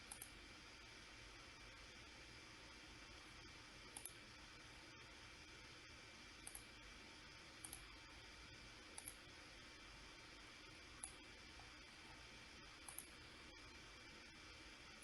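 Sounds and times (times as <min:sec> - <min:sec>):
computer mouse clicks: 0:00.0 - 0:00.4, 0:03.9 - 0:04.2, 0:06.4 - 0:06.7, 0:07.6 - 0:08.0, 0:08.9 - 0:09.2, 0:11.0 - 0:11.7, 0:12.8 - 0:13.2
low hiss: 0:00.0 - 0:15.0.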